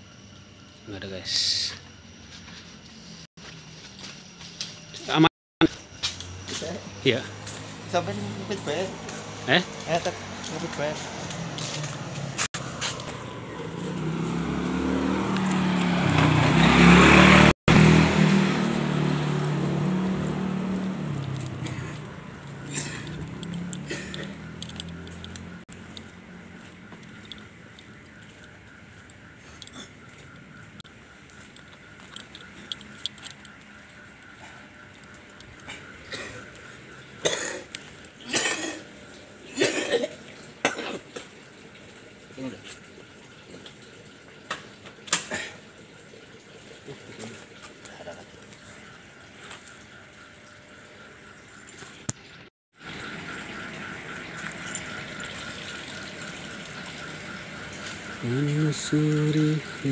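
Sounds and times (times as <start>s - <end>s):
vehicle engine passing by: 6.0s - 28.6s, 52.8s - 59.9s
man coughing: 22.7s - 23.1s, 23.8s - 24.3s, 37.2s - 38.8s, 39.5s - 41.0s.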